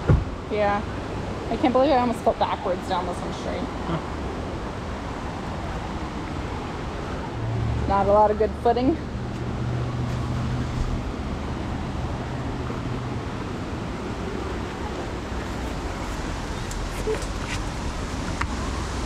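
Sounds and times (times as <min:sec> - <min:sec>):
stream and waterfall rushing: 0:02.6 - 0:08.0, 0:09.1 - 0:19.0.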